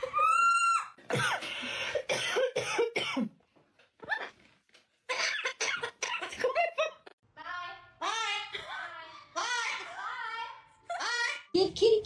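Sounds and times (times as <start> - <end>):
rasping coughs: 1.1 - 3.4, 5.1 - 6.7.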